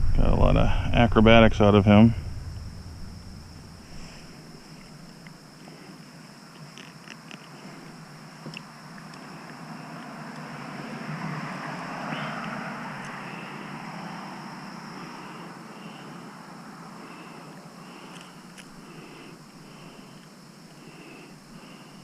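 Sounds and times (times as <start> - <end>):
engine passing by: 9.7 - 15.4.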